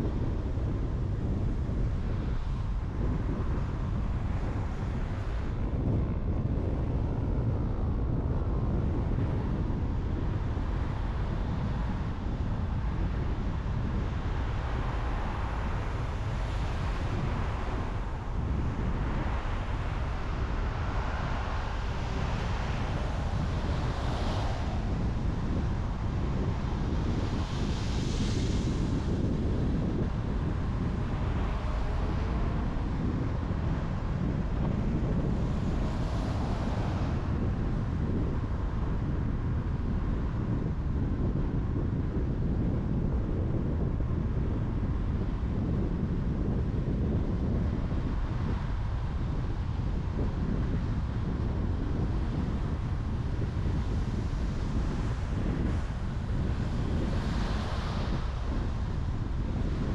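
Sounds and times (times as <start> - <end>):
car road and tyre noise: 0.0 - 59.9.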